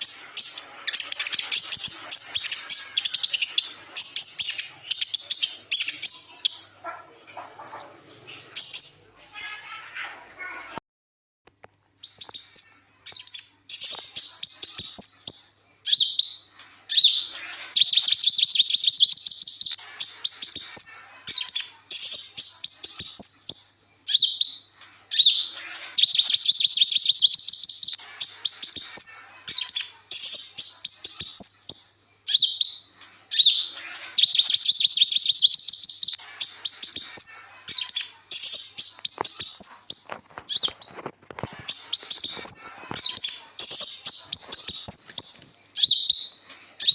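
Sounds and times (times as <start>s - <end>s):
bird twittering and trilling: 0.0s - 9.9s, 12.0s - 46.9s.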